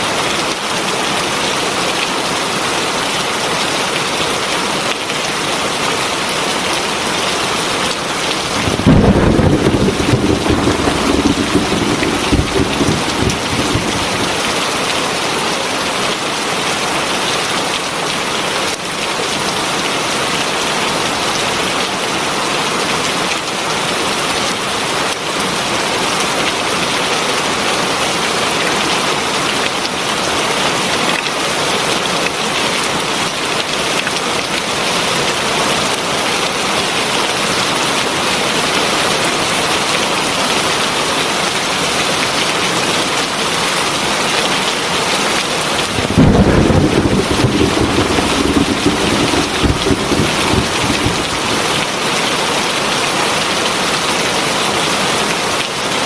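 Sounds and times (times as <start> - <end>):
heavy rain: 0.0 - 56.0
deep rumble: 8.5 - 14.6, 45.8 - 52.0.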